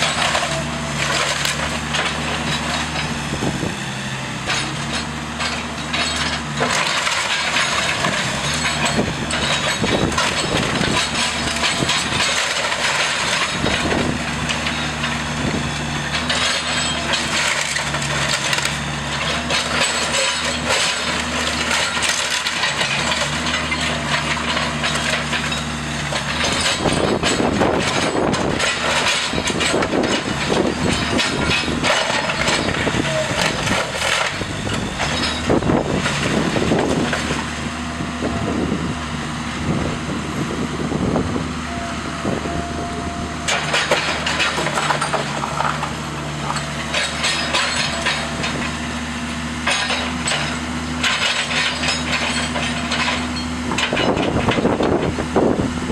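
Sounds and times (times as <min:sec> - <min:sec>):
heavy machine engine running: 0:00.0 - 0:55.9.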